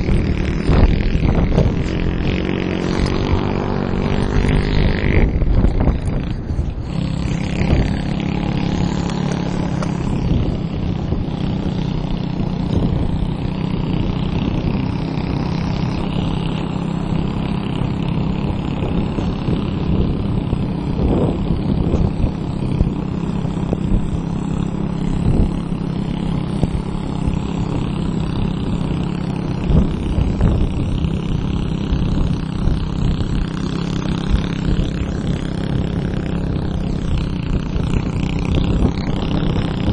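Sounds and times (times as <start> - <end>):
motorbike engine running: 0.0 - 39.9.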